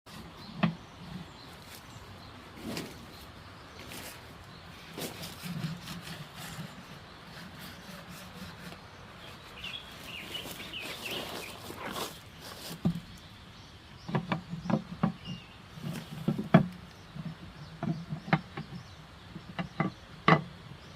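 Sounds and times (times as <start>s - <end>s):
wax rasping on wood: 5.3s - 11.9s.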